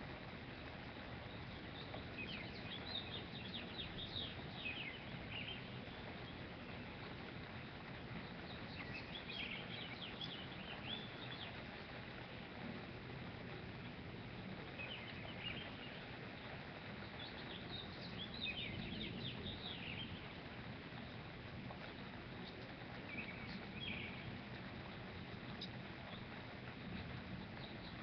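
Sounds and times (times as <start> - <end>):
low background noise: 0.0 - 28.0
birds chirping and singing: 1.3 - 6.5, 8.2 - 11.6.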